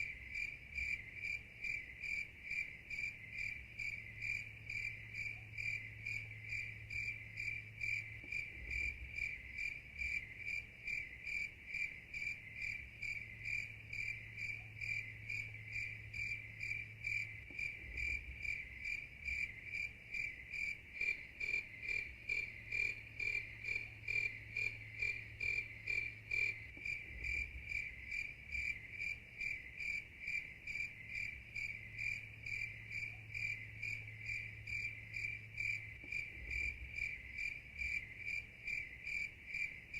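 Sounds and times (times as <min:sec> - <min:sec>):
crickets chirping: 0:00.0 - 0:39.9
faint pulsing insect call: 0:00.0 - 0:39.9
low steady hum: 0:12.3 - 0:29.8.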